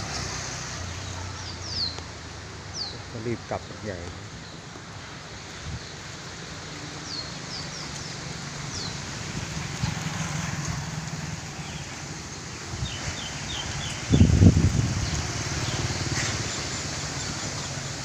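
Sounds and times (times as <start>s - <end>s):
rain hissing: 0.0s - 18.0s
storm wind: 7.6s - 18.0s.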